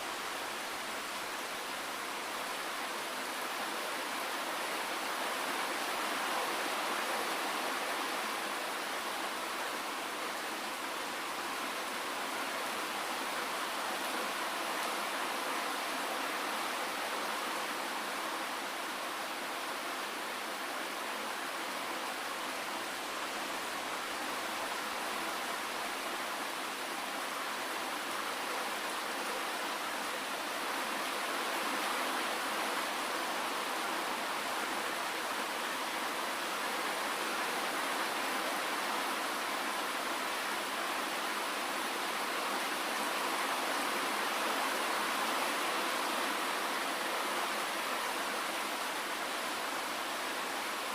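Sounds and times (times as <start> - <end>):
steady rainfall: 0.0 - 50.9.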